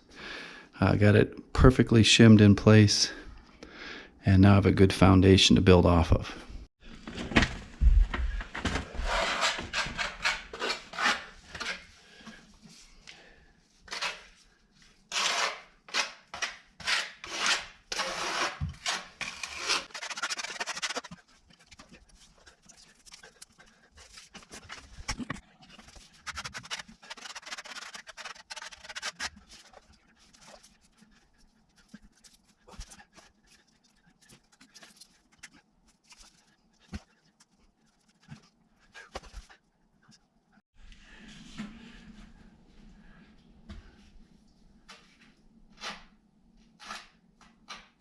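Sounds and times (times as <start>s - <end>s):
hand tool rasping on wood: 16.8s - 25.0s, 25.8s - 31.3s.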